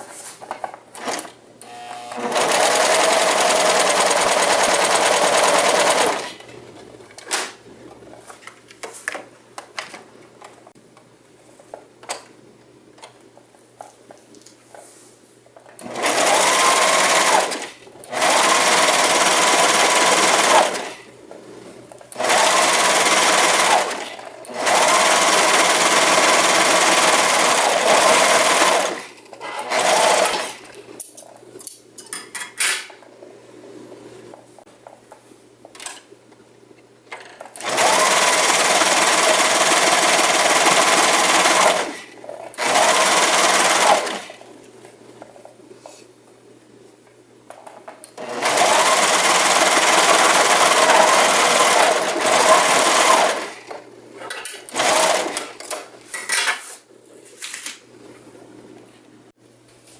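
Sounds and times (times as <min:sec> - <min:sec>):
sewing machine stitching: 0:01.0 - 0:06.4, 0:15.8 - 0:21.0, 0:22.1 - 0:30.6, 0:37.5 - 0:44.4, 0:48.2 - 0:53.8, 0:54.6 - 0:55.9.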